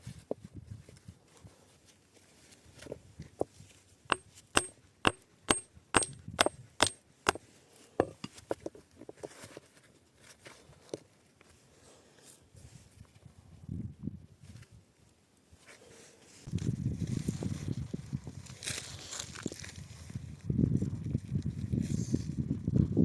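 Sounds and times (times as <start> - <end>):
hammer striking wood: 4.1 - 7.4, 8.0 - 8.3
handling knocks: 4.1 - 7.4, 8.0 - 8.4.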